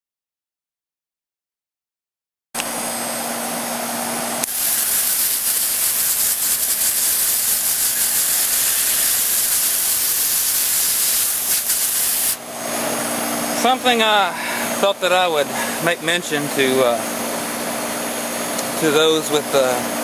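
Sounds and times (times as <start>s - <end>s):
hose water spraying on metal fins: 4.4s - 12.4s.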